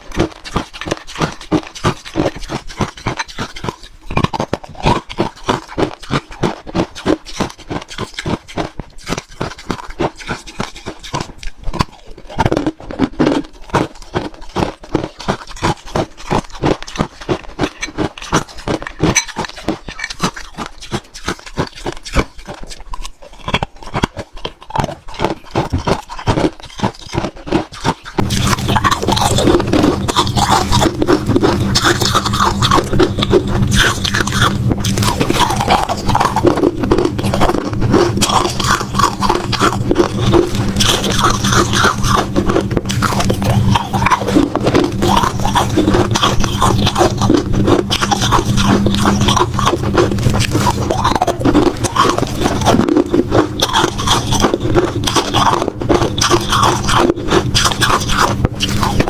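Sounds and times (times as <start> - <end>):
crunching and chewing ice: 0.0 - 59.0
steady low hum: 28.0 - 59.0.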